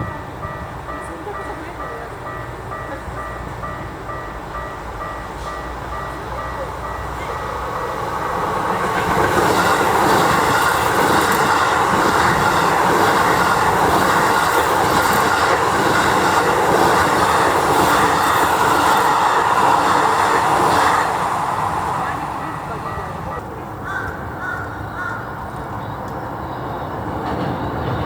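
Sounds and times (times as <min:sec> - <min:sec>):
electric train passing: 0:00.0 - 0:28.0
wheels clattering over rail joints: 0:04.6 - 0:23.5.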